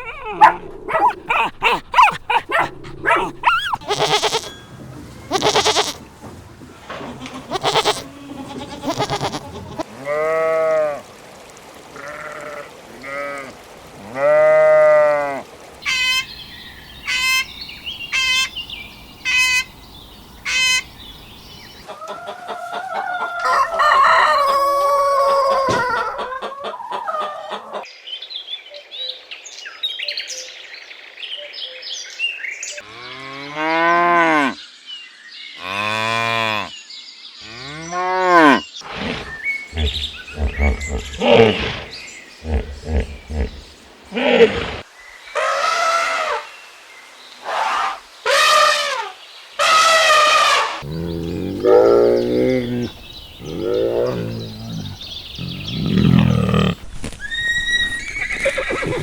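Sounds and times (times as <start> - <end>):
goats and sheep bleating: 0.0 - 4.6, 5.3 - 6.1, 6.9 - 11.0, 12.0 - 15.3, 39.7 - 41.6, 42.4 - 43.6.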